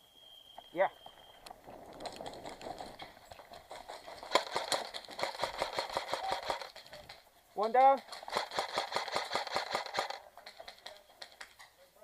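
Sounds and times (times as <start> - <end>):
airsoft guns firing: 3.7 - 7.2, 8.1 - 10.9.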